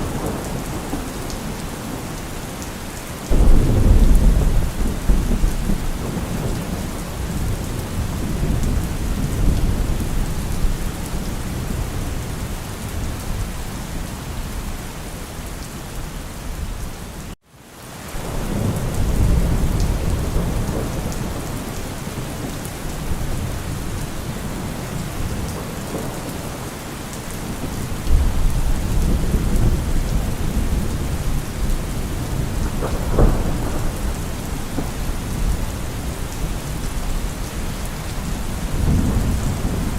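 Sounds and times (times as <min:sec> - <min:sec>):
heavy rain: 0:00.0 - 0:39.9
rolling thunder rumbles: 0:03.2 - 0:14.6, 0:18.2 - 0:39.9.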